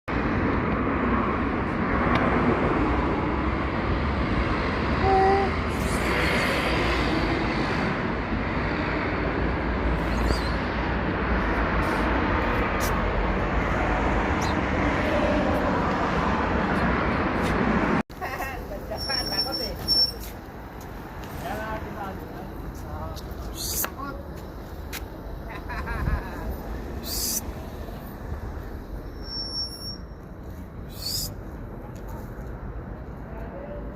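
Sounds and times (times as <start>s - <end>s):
street traffic: 0.1s - 33.9s
brief tone: 29.1s - 30.3s.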